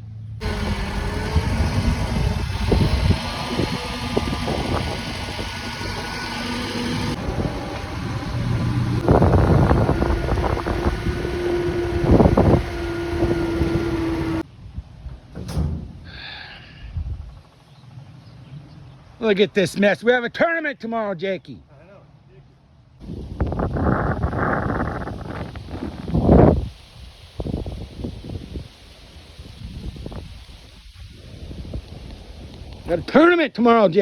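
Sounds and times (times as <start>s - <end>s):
engine running with rattles: 0.0s - 14.4s, 23.6s - 33.2s.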